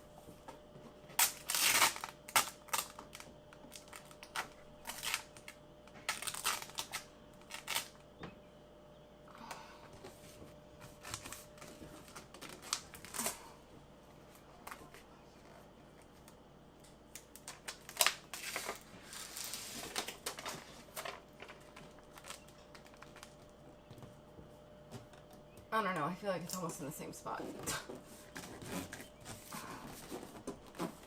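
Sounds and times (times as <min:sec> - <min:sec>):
vinyl crinkling rustle: 0:00.2 - 0:08.2, 0:10.0 - 0:16.4, 0:17.0 - 0:25.4, 0:26.6 - 0:31.0.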